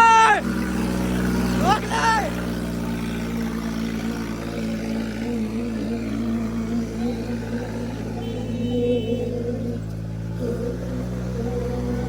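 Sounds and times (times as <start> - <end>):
tractor engines under load: 0.0 - 12.0.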